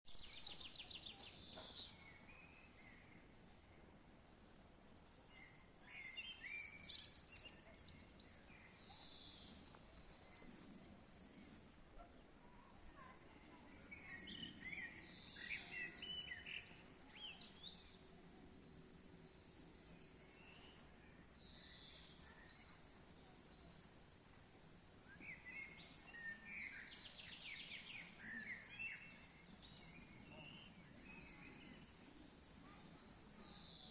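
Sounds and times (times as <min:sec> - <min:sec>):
faint outdoor hiss: 0:00.1 - 0:33.9
birds singing and chirping: 0:13.8 - 0:24.4, 0:25.0 - 0:33.9.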